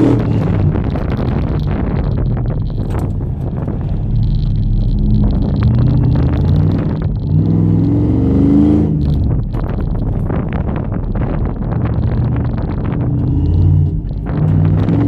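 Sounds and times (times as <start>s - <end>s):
pickup truck engine revving: 0.0s - 15.0s.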